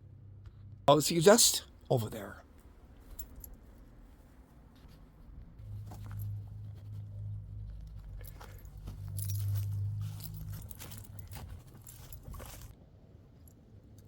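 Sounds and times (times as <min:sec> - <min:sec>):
footsteps crunching on dry ground: 0:08.3 - 0:12.7.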